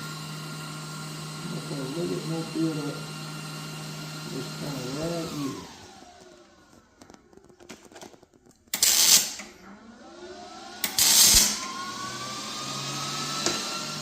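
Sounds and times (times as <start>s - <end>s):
machine hum rising in pitch: 9.6s - 14.0s.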